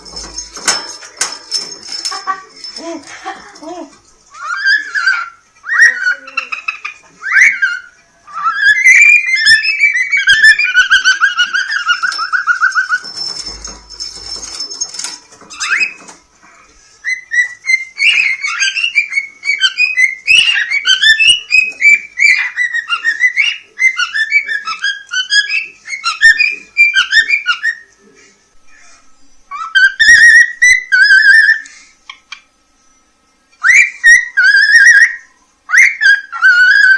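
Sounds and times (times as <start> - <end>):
cockatiel chirping and whistling: 4.4 - 13.6, 17.0 - 27.9, 29.5 - 32.2, 33.6 - 36.9.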